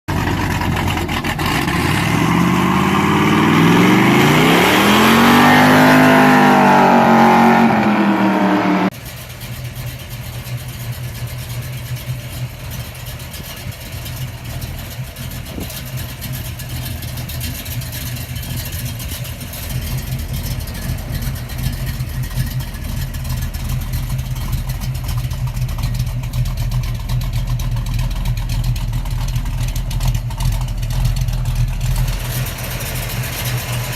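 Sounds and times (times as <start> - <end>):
car engine revving: 0.1 - 9.0, 15.9 - 33.9
engine idling: 0.1 - 33.9.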